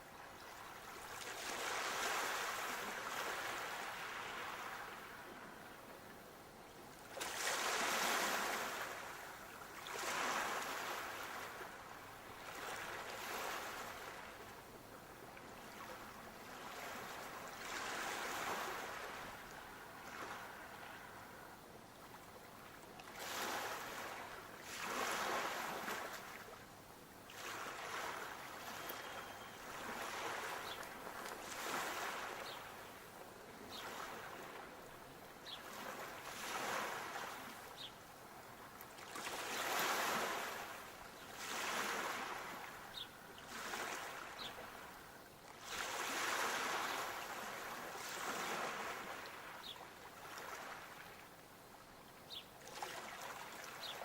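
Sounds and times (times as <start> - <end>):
sea waves washing onto shore: 1.0 - 5.2, 7.1 - 14.4, 23.0 - 26.5, 27.3 - 32.8.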